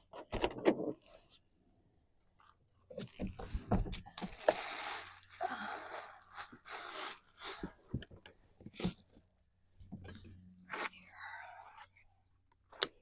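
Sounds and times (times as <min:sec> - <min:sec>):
rustling and crinkling of supplies: 0:02.4 - 0:09.3.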